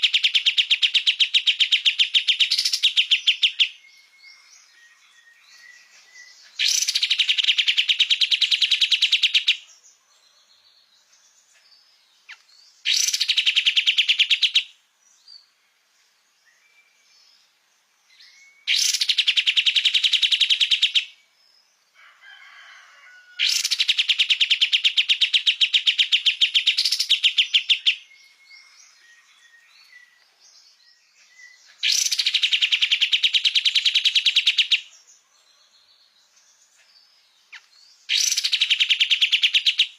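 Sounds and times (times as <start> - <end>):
songbird trilling: 0.0 - 9.6, 12.2 - 14.8, 18.2 - 21.2, 23.4 - 35.0, 37.5 - 39.9
faint bird chirps: 0.0 - 39.9.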